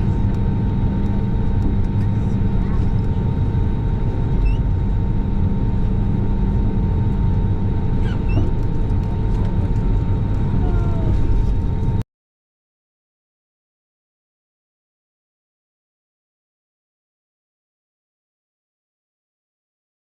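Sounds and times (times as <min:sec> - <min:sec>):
airliner engines rumbling: 0:00.0 - 0:12.0
thin steady whine: 0:00.0 - 0:12.0.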